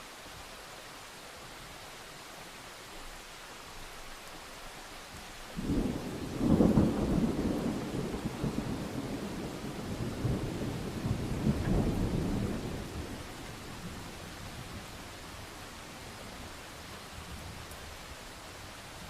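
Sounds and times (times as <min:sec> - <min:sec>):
steady rainfall: 0:00.0 - 0:19.0
distant thunder rumble: 0:05.6 - 0:15.6.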